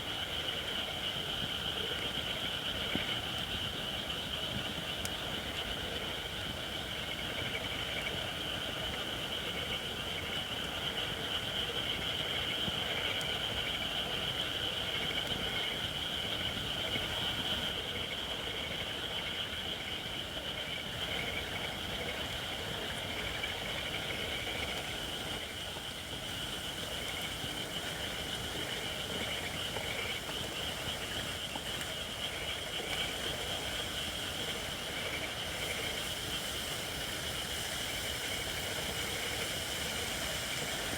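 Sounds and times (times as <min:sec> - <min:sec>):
campfire crackling: 0:24.1 - 0:40.9.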